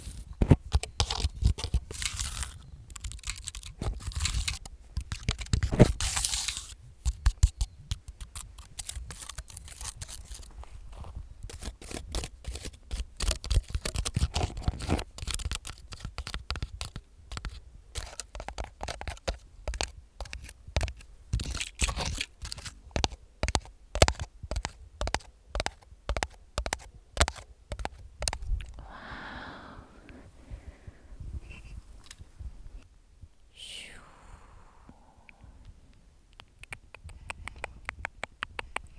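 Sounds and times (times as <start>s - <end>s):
fingernails tapping and scratching: 0.4s - 10.5s, 11.5s - 28.7s
soft whisper: 28.8s - 32.0s, 33.5s - 35.9s.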